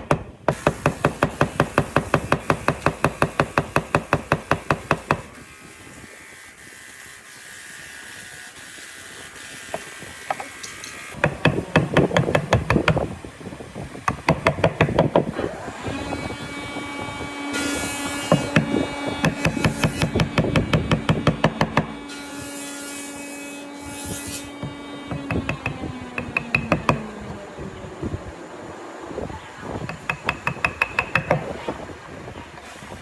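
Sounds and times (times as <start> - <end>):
motor humming: 9.4 - 22.4, 23.6 - 32.5
knocking and tapping on wood: 11.2 - 13.1, 29.9 - 31.5.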